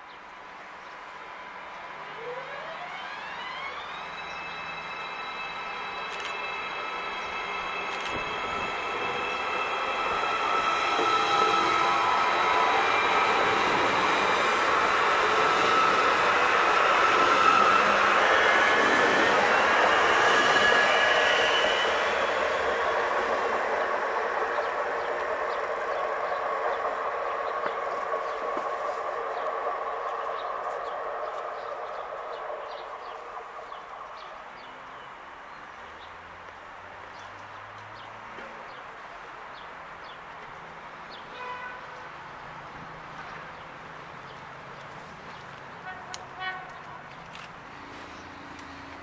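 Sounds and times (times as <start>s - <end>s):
train wheels rolling on rail: 3.1s - 35.4s.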